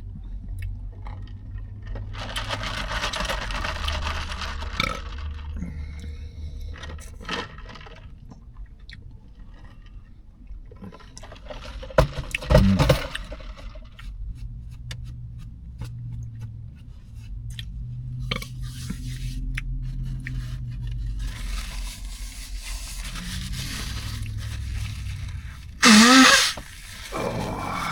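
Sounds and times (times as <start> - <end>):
handling noise: 23.4 - 27.9.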